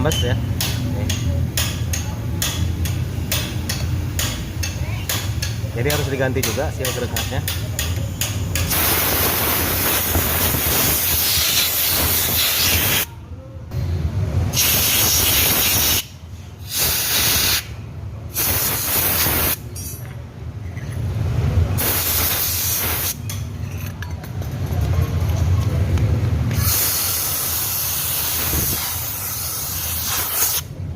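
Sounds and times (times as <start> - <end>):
compressed air blow gun hissing: 8.7 - 13.1, 14.6 - 17.7, 18.3 - 19.6, 21.8 - 23.2, 26.5 - 30.6.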